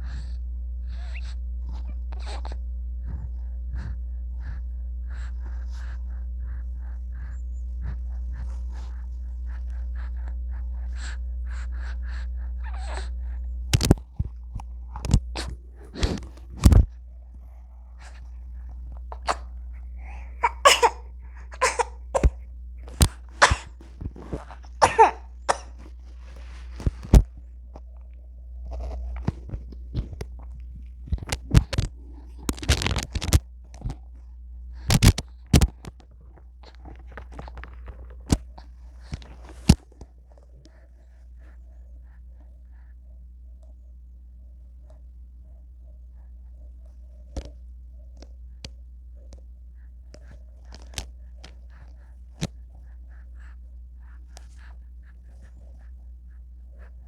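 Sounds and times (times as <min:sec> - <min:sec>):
steady low hum: 0:00.0 - 0:57.0
baby vocal noises: 0:19.1 - 0:22.4, 0:23.0 - 0:25.8
baby coughing and sneezing: 0:19.2 - 0:19.5, 0:20.1 - 0:22.4, 0:23.0 - 0:23.8, 0:24.7 - 0:25.8.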